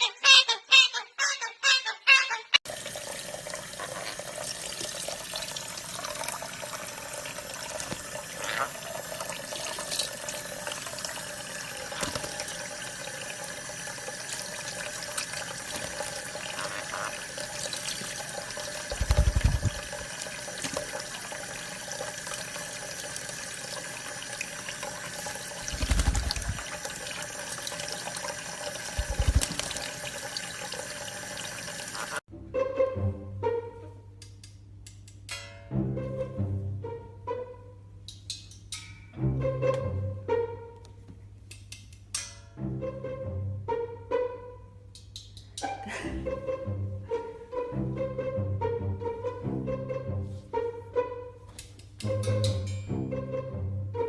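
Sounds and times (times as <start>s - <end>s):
running water: 2.6s - 32.2s.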